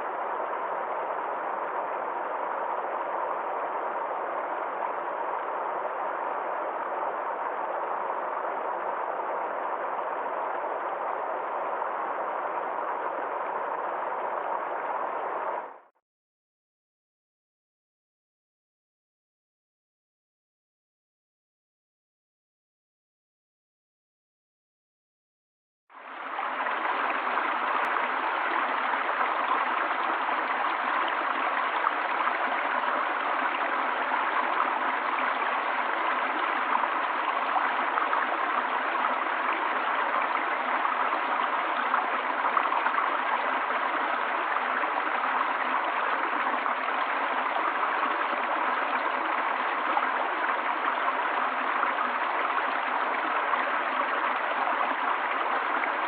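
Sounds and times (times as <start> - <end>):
stream water rushing: 26.0 - 56.0.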